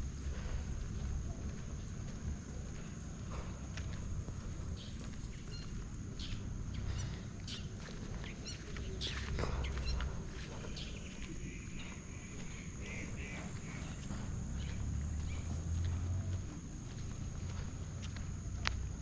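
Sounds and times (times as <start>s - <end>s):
footsteps on trail: 0.0s - 19.0s
steady high-pitched whine: 0.0s - 19.0s
bird chirps: 4.7s - 15.6s.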